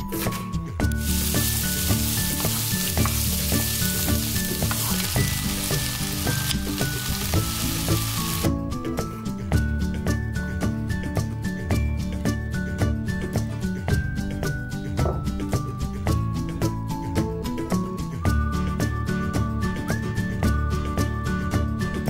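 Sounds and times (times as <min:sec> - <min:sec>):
vegetables sizzling in oil: 0:01.0 - 0:08.5.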